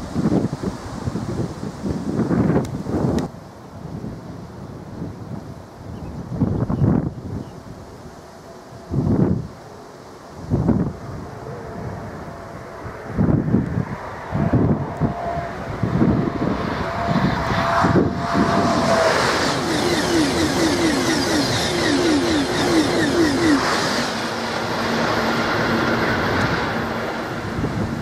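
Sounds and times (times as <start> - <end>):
high-speed train rushing past: 0.0 - 5.7, 7.7 - 28.0
rhythmic beat of train coaches: 18.1 - 25.2.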